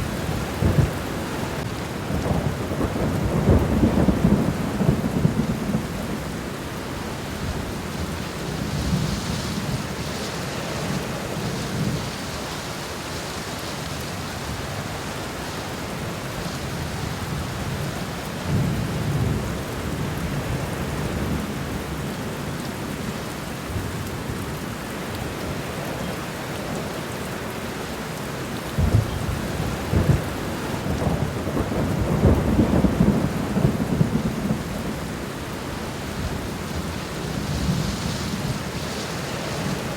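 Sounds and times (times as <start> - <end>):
rain falling on ground: 0.0 - 39.9
thunder rolling: 28.8 - 35.1.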